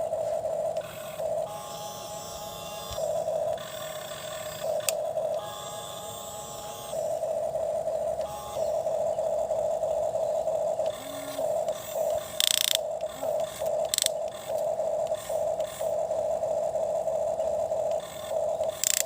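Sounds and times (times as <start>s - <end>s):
toy motor whining: 0.8s - 9.0s, 10.5s - 16.0s, 17.8s - 19.0s.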